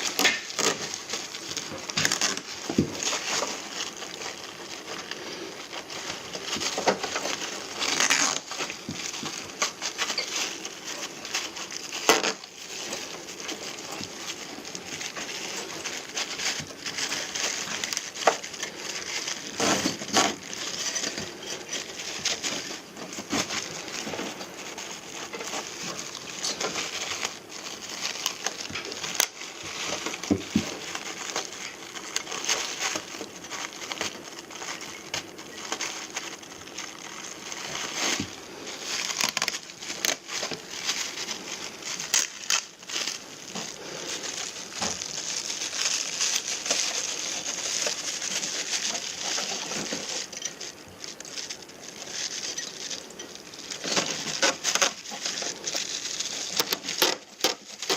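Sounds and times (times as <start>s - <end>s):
rustling and crinkling: 0.0s - 57.9s.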